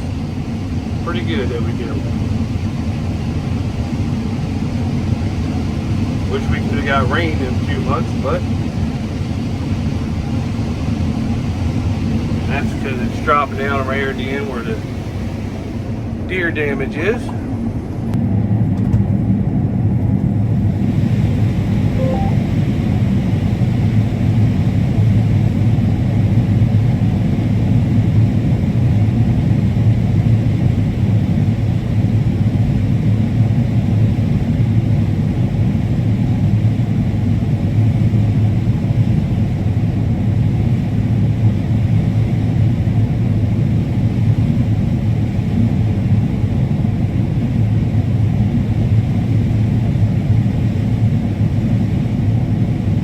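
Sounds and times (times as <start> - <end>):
combine harvester rumbling: 0.0 - 18.2.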